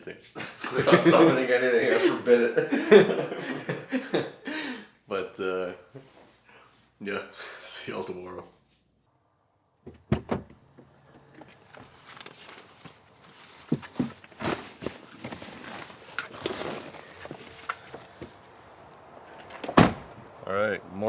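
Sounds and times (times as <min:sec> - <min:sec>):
light knocks and handling noises: 0:09.8 - 0:20.4
footsteps: 0:10.4 - 0:21.0.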